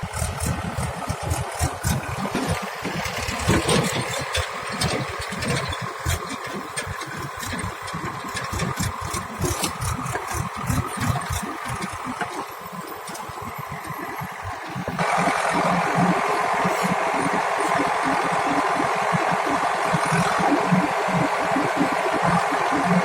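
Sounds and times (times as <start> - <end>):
knocks and rattles: 0.0 - 12.4
diesel engine throbbing: 0.0 - 23.0.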